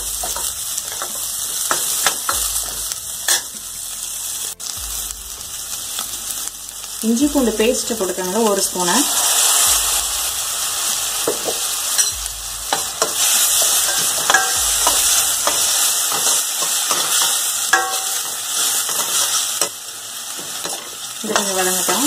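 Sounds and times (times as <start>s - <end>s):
paste sizzling in hot oil: 0.0s - 22.0s
metal spoon scraping pan: 8.8s - 19.7s
spoon clinking against pan: 13.9s - 19.7s.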